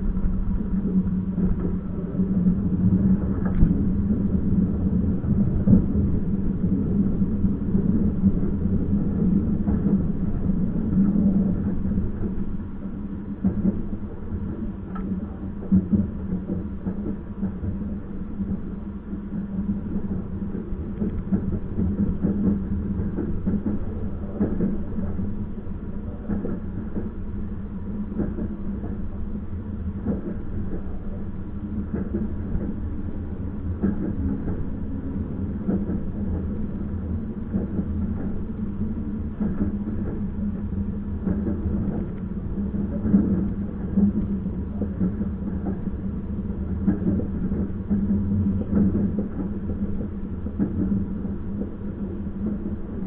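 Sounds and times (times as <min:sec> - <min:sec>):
train rumbling on rails: 0:00.0 - 0:53.0.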